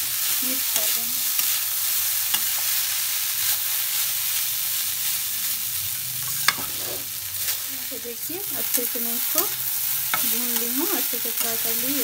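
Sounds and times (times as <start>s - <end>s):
food sizzling in pan: 0.0s - 12.0s
metal spatula scraping: 6.2s - 7.7s.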